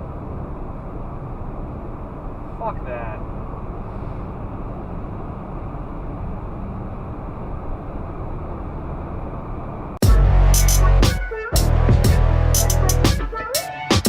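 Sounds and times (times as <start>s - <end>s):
car road and engine noise: 0.0s - 14.0s
loud electronic music: 10.0s - 14.0s.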